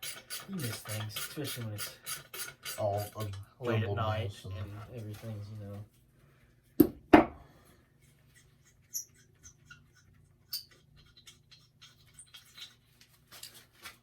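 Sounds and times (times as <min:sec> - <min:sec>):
hand tools clicking and clinking: 0:00.0 - 0:03.4.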